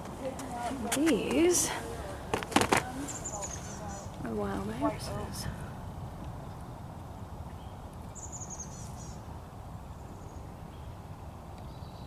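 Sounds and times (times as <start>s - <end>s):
steady low rumble: 0.0s - 8.2s
songbird high-pitched call: 7.5s - 9.3s.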